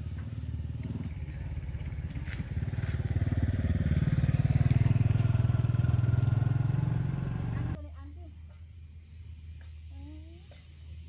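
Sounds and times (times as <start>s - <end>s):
small engine running: 0.0s - 7.8s.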